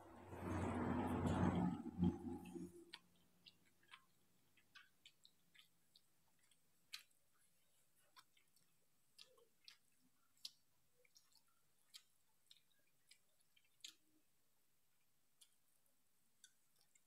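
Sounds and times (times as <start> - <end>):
faint chewing clicks and smacks: 0.0 - 17.0.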